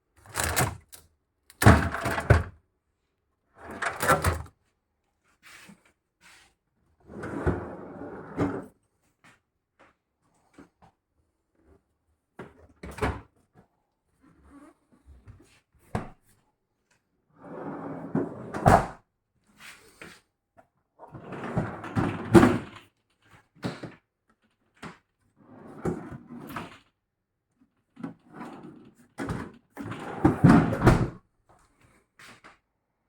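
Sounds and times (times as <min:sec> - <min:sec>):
fridge drawers sliding: 0:03.6 - 0:04.5.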